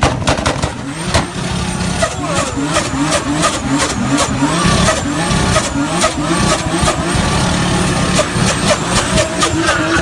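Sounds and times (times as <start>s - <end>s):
car engine at high revs: 0.0s - 10.0s.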